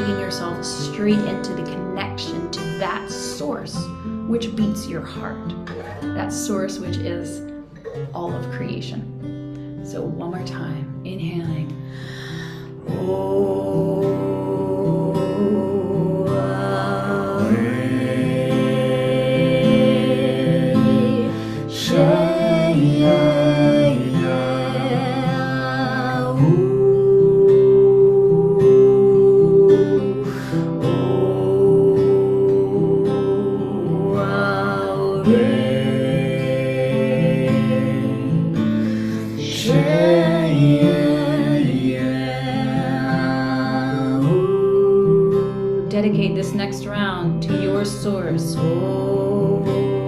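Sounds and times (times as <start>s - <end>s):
strummed acoustic guitar: 0.0s - 50.0s
voices chanting held vowels: 12.8s - 45.8s.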